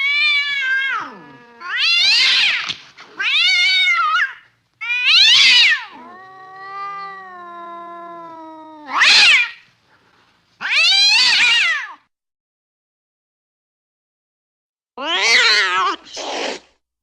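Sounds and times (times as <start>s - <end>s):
cat yowling: 0.0s - 9.6s, 10.6s - 12.0s, 15.0s - 16.2s.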